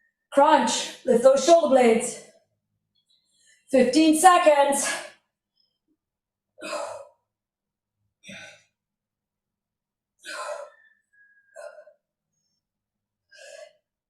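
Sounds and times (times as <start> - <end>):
woman exhaling forcefully: 10.2 - 10.7.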